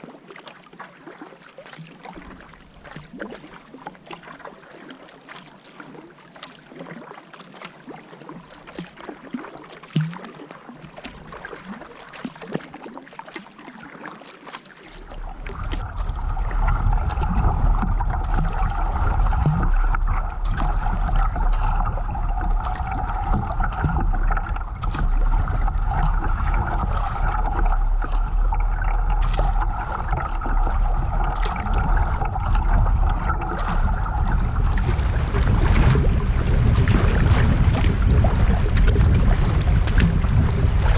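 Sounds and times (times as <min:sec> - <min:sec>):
small splash ticks: 0:00.0 - 0:40.9
water splashing: 0:00.0 - 0:40.9
wind rumbling on microphone: 0:15.0 - 0:40.9.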